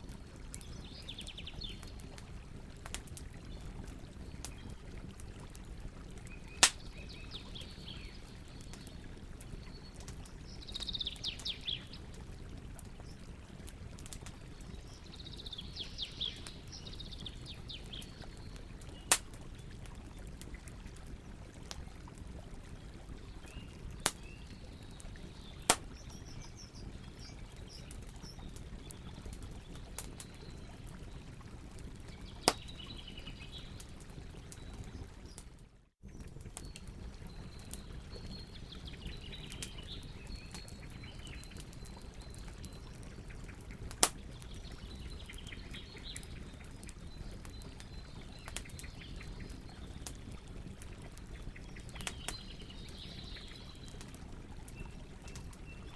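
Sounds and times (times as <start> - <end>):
campfire crackling and popping: 0.0 - 55.9
birds chirping: 6.3 - 12.1, 14.6 - 19.1, 36.1 - 43.6.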